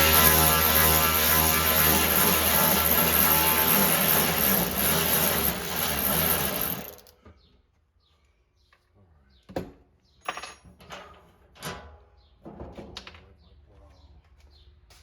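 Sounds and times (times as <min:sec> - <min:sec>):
loud even noise: 0:00.0 - 0:07.0.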